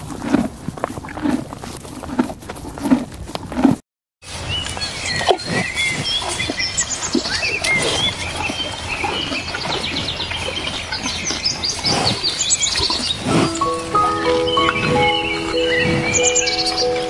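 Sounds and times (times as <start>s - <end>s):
birds chirping: 4.5s - 17.0s.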